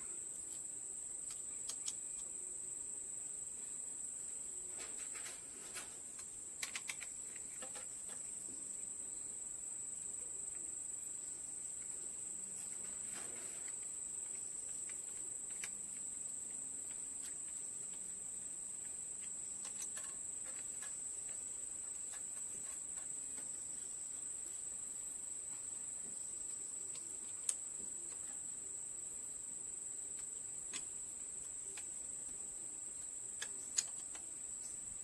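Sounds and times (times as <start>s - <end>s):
high-pitched insect drone: 30.8s - 35.0s.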